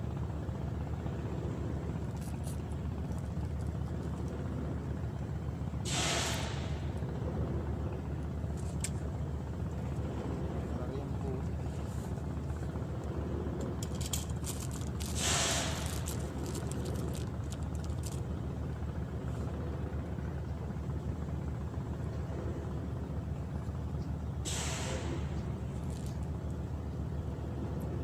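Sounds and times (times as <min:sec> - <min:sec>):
engine humming: 0:00.0 - 0:28.0
brief hiss: 0:05.9 - 0:06.8, 0:15.2 - 0:15.8, 0:24.5 - 0:25.3.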